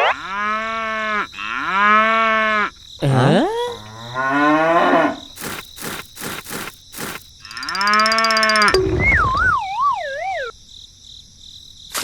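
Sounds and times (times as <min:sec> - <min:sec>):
wavering whistle-like tone: 0:07.5 - 0:10.5.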